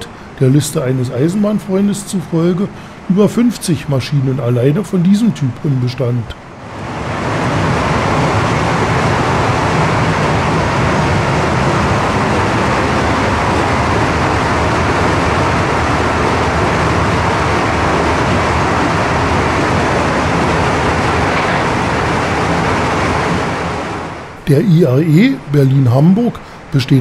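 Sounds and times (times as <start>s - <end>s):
train rolling at speed: 6.5s - 26.8s.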